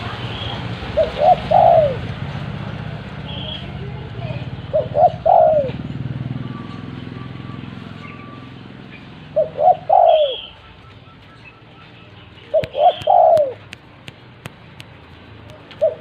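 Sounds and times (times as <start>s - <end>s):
dove cooing: 0.9s - 2.2s, 4.3s - 6.1s, 9.1s - 11.5s, 12.5s - 13.7s, 15.7s - 16.0s.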